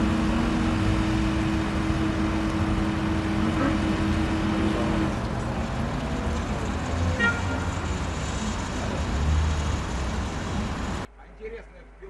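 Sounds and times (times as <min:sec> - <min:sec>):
vehicle engine running: 0:00.0 - 0:11.1
road noise: 0:00.0 - 0:12.0.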